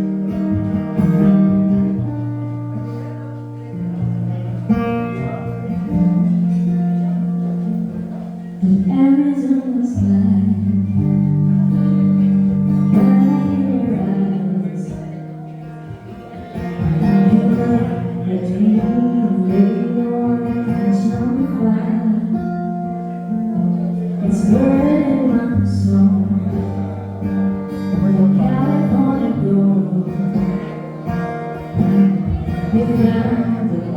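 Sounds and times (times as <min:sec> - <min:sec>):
acoustic guitar strumming: 0:00.0 - 0:33.9
person singing with vibrato: 0:08.5 - 0:11.9, 0:16.8 - 0:22.8, 0:24.2 - 0:30.9, 0:31.7 - 0:33.9.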